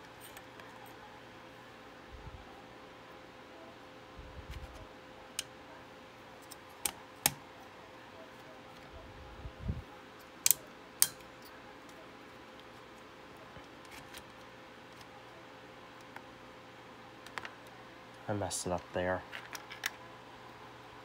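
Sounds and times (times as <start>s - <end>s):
small hardware parts clicking: 10.4s - 11.5s.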